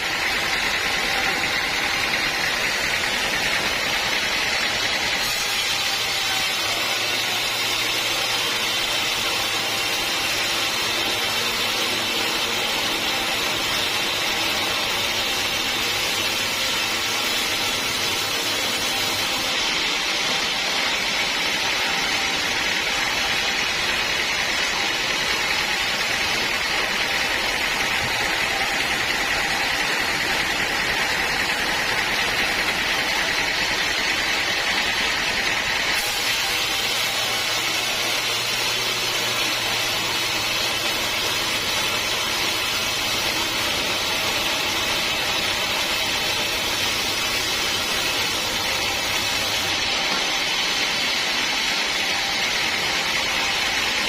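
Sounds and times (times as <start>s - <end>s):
sawmill saw whining: 0.0s - 54.0s.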